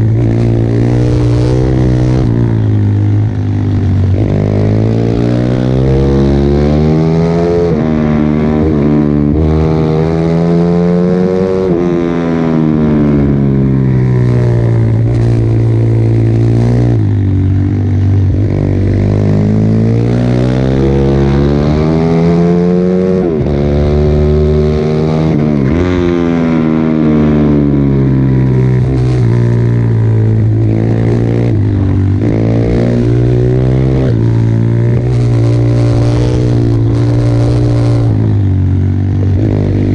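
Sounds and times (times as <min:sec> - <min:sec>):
pit bike engine revving: 0:18.2 - 0:39.9.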